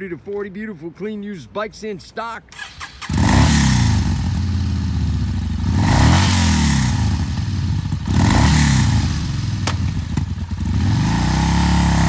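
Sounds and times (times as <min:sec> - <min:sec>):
motorcycle engine revving: 0:02.6 - 0:12.0.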